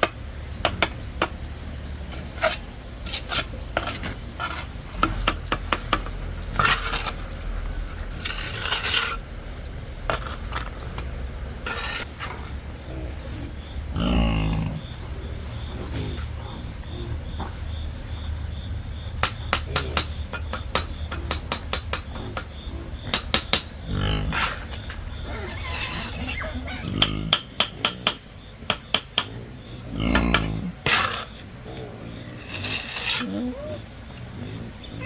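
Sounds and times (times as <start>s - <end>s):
crickets chirping: 0.0s - 35.0s
scraping: 2.0s - 14.1s, 24.0s - 27.0s, 32.2s - 35.0s.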